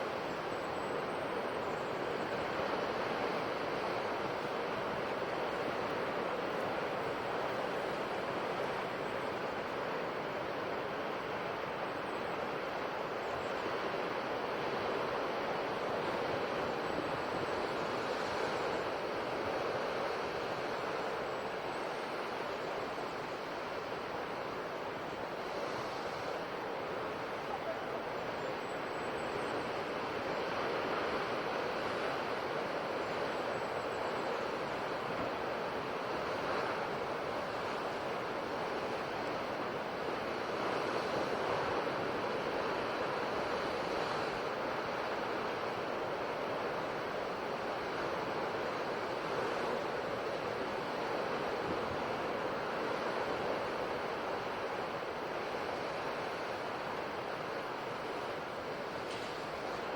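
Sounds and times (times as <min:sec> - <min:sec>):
sea waves washing onto shore: 0:29.6 - 0:59.9.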